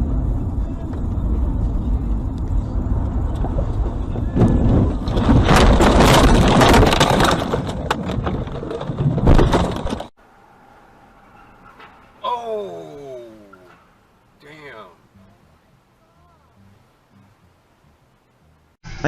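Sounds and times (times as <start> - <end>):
car road rumble: 0.0 - 19.0
car collision crunching and scraping: 3.4 - 10.1, 11.1 - 12.3.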